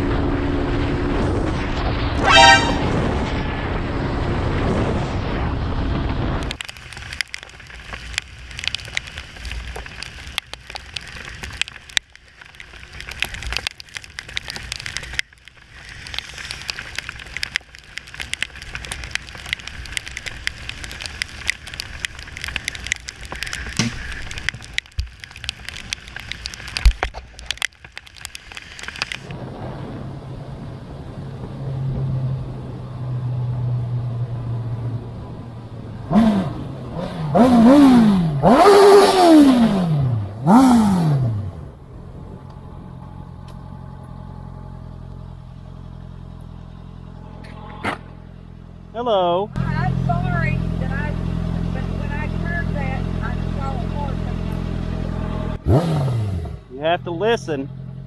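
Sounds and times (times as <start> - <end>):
low motorcycle engine hum: 0.0 - 58.0
rough crackling noise with clicks: 5.3 - 32.7, 36.1 - 48.9.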